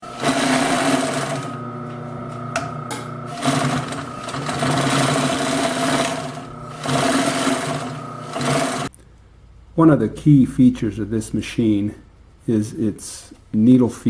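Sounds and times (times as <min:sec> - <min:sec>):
industrial sewing machine running: 0:00.0 - 0:08.9.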